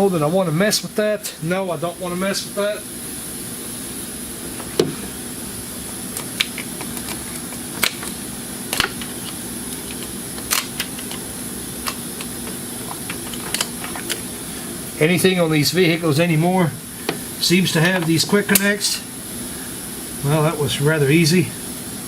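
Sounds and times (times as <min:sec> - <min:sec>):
steady low hum: 0:00.0 - 0:22.0
clicks and knocks of hose fittings: 0:06.2 - 0:14.2.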